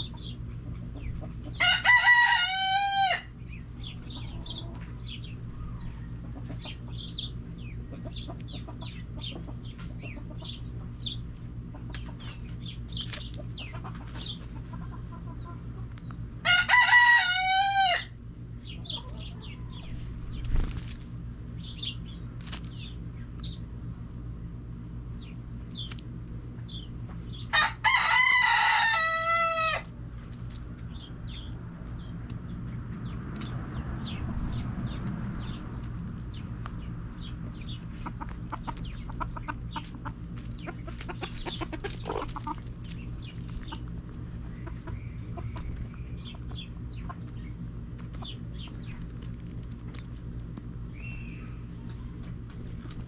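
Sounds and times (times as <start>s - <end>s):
chickens clucking: 0.0s - 53.0s
steady low hum: 0.0s - 53.0s
rooster crowing: 1.5s - 3.4s, 16.4s - 18.2s, 27.5s - 29.9s.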